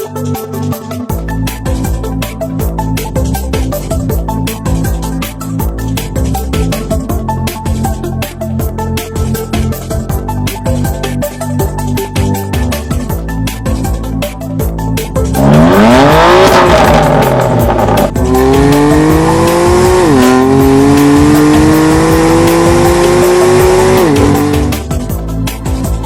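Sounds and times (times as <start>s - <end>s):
electronic music: 0.0s - 26.0s
car engine revving and accelerating: 15.3s - 24.9s.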